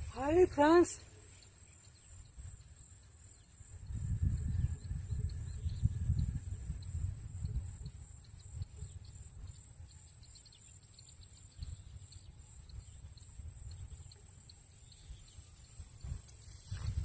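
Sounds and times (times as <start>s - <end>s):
high-pitched insect drone: 0.0s - 17.0s
wind rumble on microphone: 3.6s - 14.2s, 14.8s - 17.0s.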